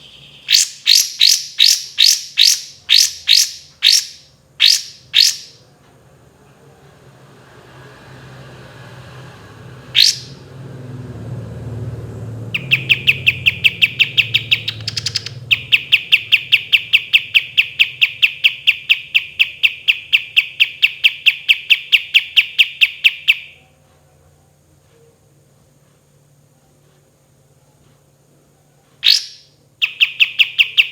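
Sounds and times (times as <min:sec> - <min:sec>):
songbird fast trill: 0:00.0 - 0:05.6, 0:10.0 - 0:10.4, 0:12.5 - 0:23.6, 0:29.0 - 0:30.9.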